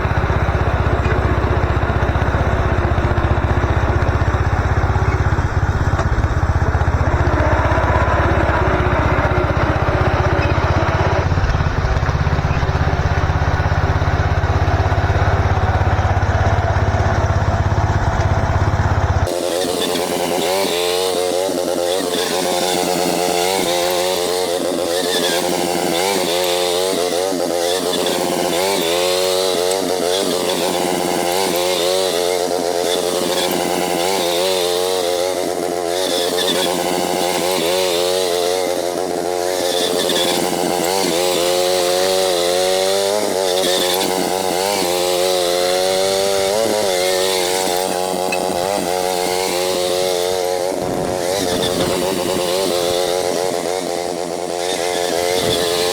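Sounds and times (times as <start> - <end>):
small tractor engine running: 0.0 - 55.9.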